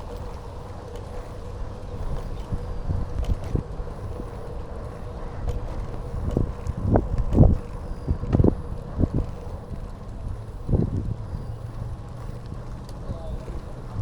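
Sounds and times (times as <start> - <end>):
bicycle knocks and rattles: 0.0 - 11.1
wind and tyres rumbling: 0.0 - 14.0.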